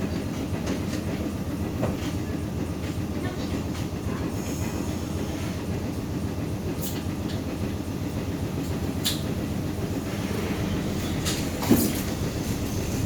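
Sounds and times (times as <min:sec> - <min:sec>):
streetcar wheels rumbling on rails: 0:00.0 - 0:13.0.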